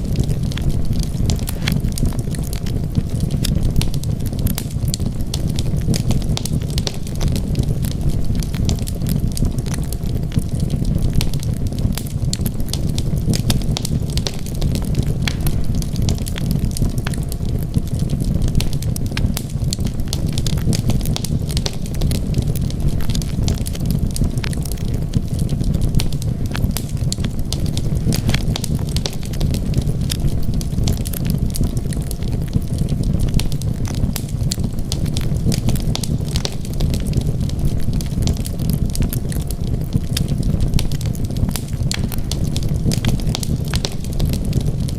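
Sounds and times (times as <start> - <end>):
fire crackling and popping: 0.0 - 44.9
wood fire rumbling: 0.0 - 44.9.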